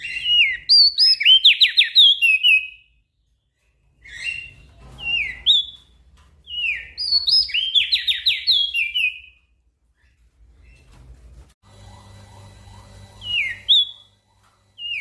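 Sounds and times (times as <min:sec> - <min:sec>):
songbird whistling: 0:06.5 - 0:09.4, 0:13.2 - 0:14.1.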